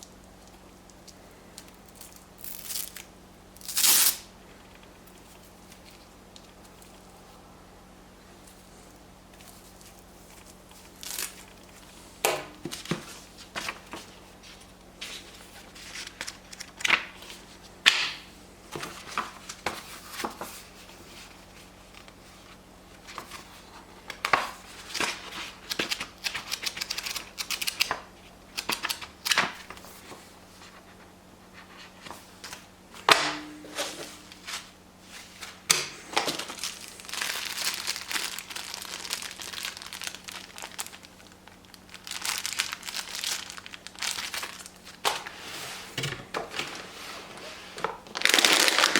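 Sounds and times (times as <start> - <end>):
packaging crinkling and rustling: 8.5 - 11.9, 12.6 - 17.7, 33.7 - 48.9.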